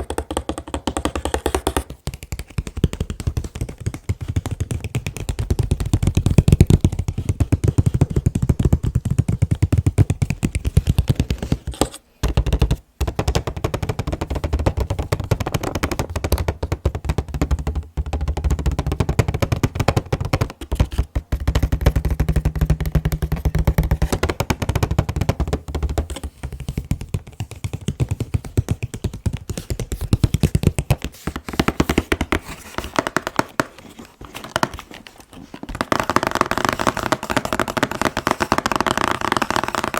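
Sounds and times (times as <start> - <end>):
fingers tapping on a box: 0.0 - 39.9.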